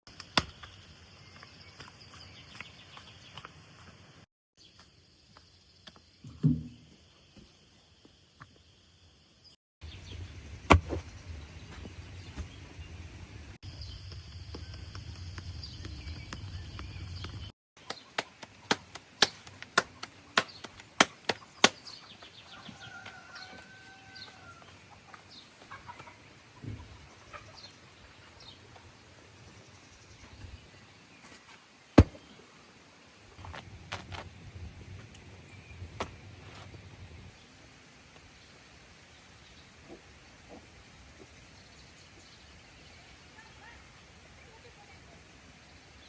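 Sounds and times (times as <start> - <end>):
quick chopping strikes: 10.7 - 11.0, 32.0 - 32.2.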